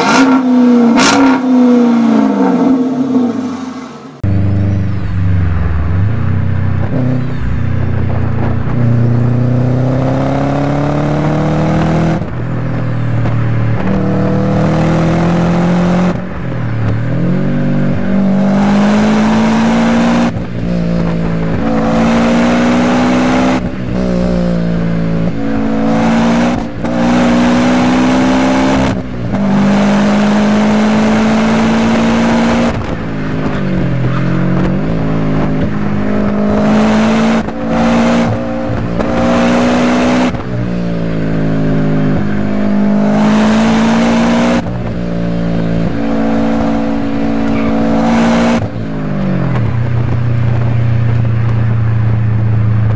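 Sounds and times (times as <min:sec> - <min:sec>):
car engine revving through gears: 0:00.0 - 0:52.9.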